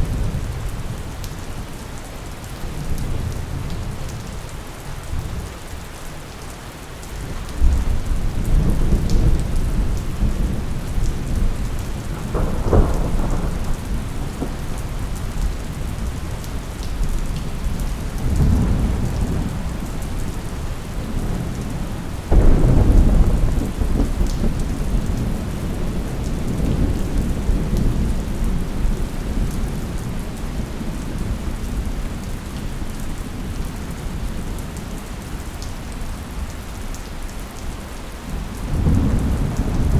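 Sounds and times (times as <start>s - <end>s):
steady rain: 0.0s - 39.9s
rolling thunder: 7.6s - 30.2s, 38.6s - 39.9s
thunder crack: 12.0s - 15.5s, 22.3s - 25.3s.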